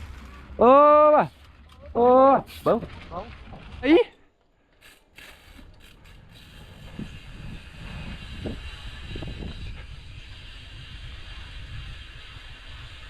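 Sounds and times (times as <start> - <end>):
bicycle rolling rumble: 0.0 - 13.0
wind rushing over microphone: 6.0 - 13.0.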